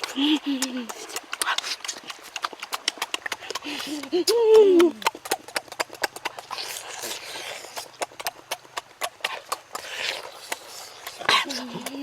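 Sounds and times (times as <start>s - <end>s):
chewing and lip-smacking: 0.0s - 12.0s.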